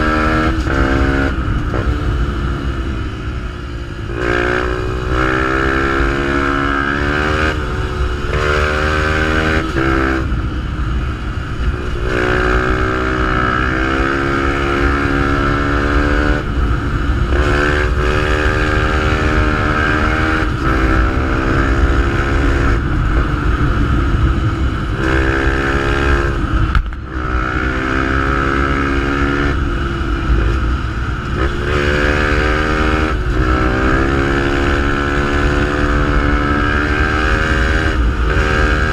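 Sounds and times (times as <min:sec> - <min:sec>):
motorcycle engine shifting gears: 0:00.0 - 0:38.9.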